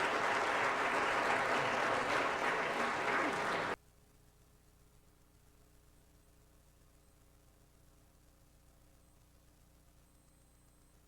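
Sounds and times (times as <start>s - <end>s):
congregation applauding: 0.0s - 3.8s.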